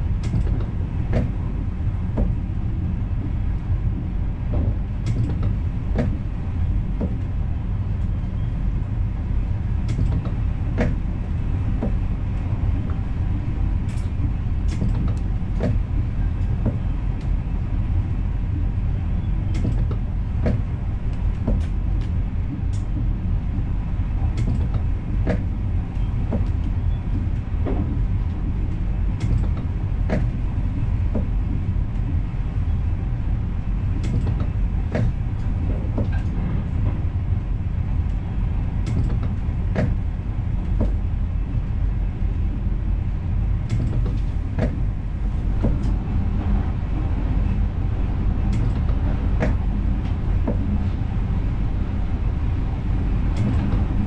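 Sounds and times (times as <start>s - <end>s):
train low rumble: 0.0s - 54.0s
sharp clicks and creaks: 4.5s - 6.3s, 13.9s - 17.3s, 24.2s - 32.8s, 33.9s - 37.0s, 38.8s - 40.0s, 43.6s - 44.9s, 53.3s - 54.0s.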